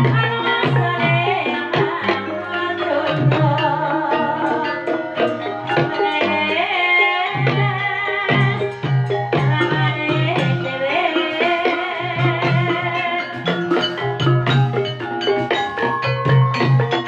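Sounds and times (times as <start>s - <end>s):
drum strokes: 0.0s - 17.0s
ringing pitched tones: 0.0s - 17.0s
person singing melody: 9.4s - 13.8s.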